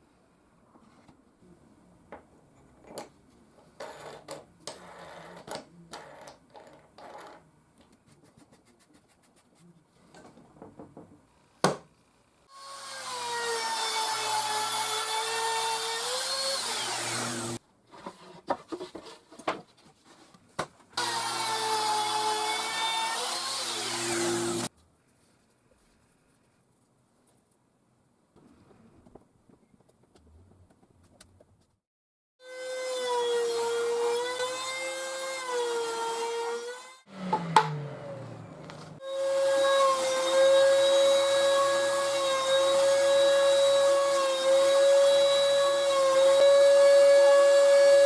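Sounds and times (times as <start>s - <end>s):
electric power tool motor whine: 16.5s - 17.6s, 21.0s - 24.7s, 37.1s - 41.8s.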